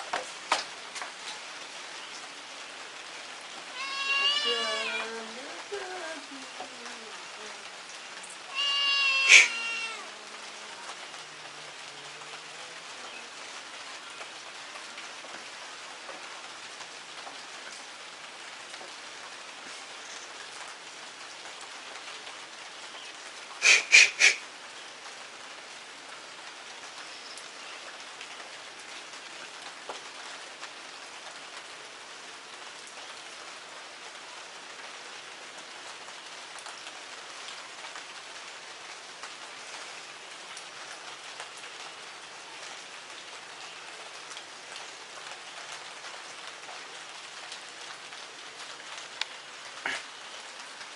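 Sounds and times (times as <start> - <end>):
steady rain: 0.0 - 50.9
animal calls: 3.7 - 5.1, 8.5 - 10.1, 23.6 - 24.4.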